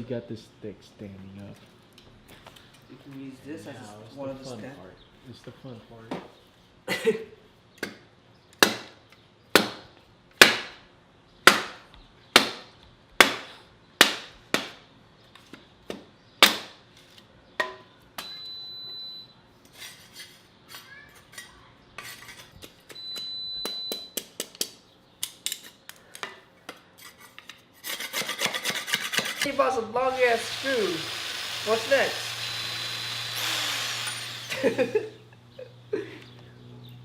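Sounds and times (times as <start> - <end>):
high whines: 29.5 - 35.2.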